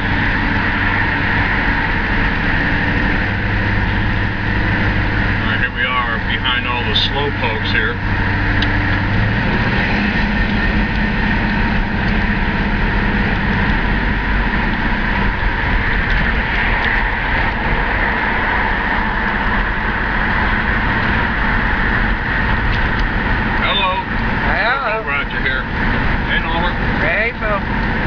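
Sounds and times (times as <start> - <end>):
car engine running: 0.0 - 28.0
road noise inside car: 0.0 - 28.0.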